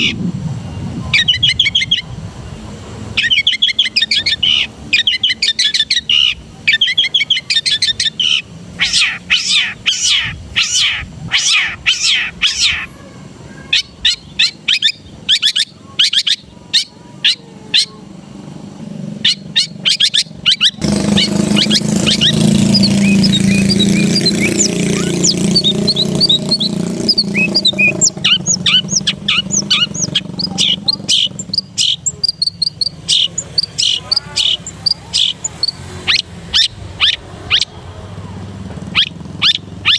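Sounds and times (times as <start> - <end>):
bird singing harsh chattering: 0.0 - 39.9
faint high chirps: 19.2 - 38.3.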